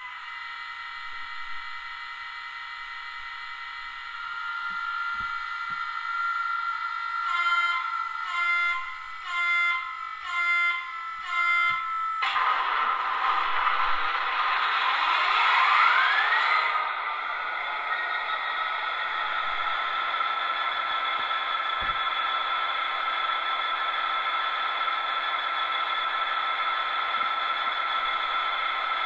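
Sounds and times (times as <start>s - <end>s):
diesel engine sound with rising whine: 12.3s - 29.0s
steady high tone: 17.0s - 29.0s.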